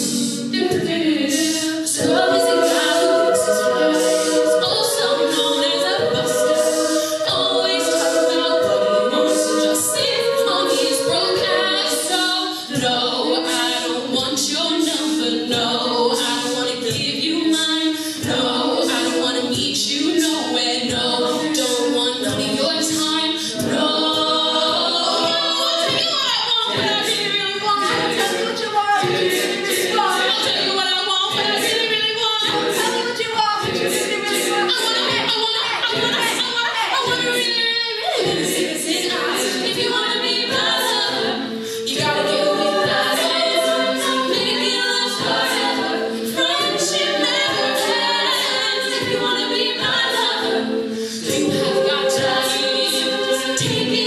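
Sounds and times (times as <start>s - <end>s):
choir singing in harmony: 0.0s - 54.0s.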